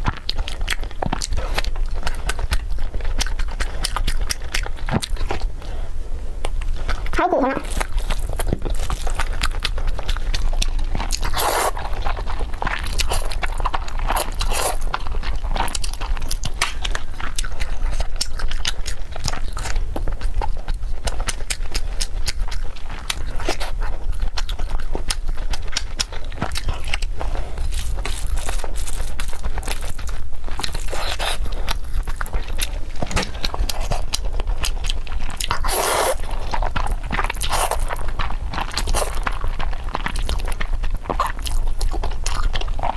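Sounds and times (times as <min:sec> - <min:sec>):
crunchy chewing: 0:00.0 - 0:42.9
wet mouth sounds: 0:30.5 - 0:42.9.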